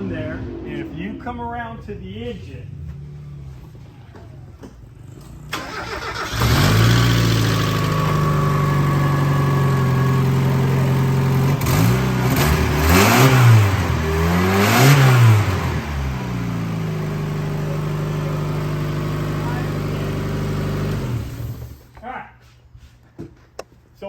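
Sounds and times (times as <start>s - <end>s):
car engine idling and revving: 0.0s - 21.9s.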